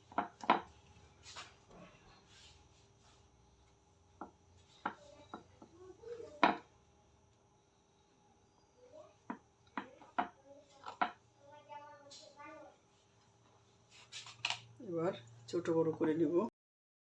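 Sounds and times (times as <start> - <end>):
knife knocking on wooden board: 6.4 - 6.6.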